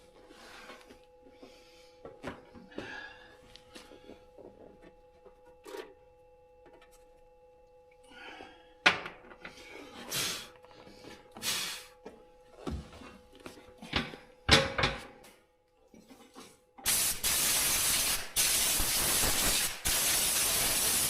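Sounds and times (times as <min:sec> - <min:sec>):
faint steady hum: 0:00.0 - 0:16.9
metal clunks and knocks: 0:13.9 - 0:15.1.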